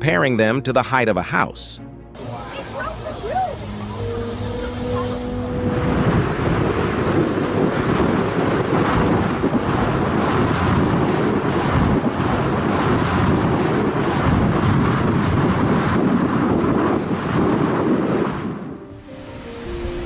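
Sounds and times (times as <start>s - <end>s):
ocean waves breaking: 2.2s - 20.0s
wind buffeting microphone: 2.2s - 20.0s.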